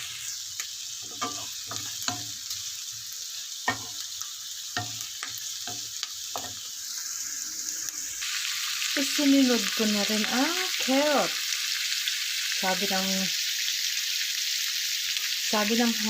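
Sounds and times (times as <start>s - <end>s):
meat sizzling in hot oil: 0.0s - 16.0s
utensil scraping a pan: 1.0s - 2.3s.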